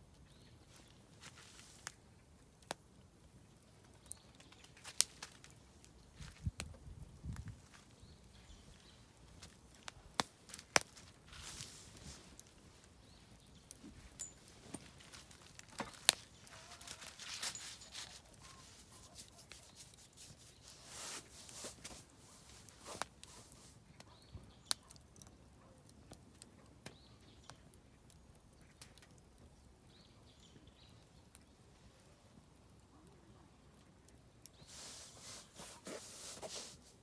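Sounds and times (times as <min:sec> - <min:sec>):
firewood crackling and popping: 0:00.0 - 0:37.0
fire hissing: 0:34.6 - 0:37.0.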